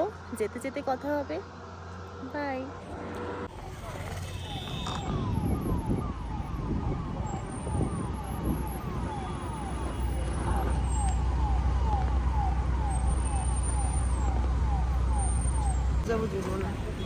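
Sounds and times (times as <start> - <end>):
car engine and road rumble: 0.0 - 17.0
siren-like alarm tone: 2.8 - 16.2.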